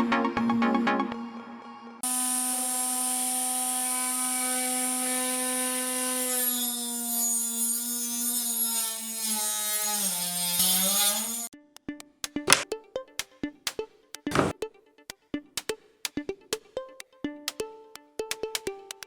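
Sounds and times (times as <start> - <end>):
saw blade motor whining: 2.0 - 6.8
blade cutting wood: 2.0 - 11.5, 14.3 - 14.5.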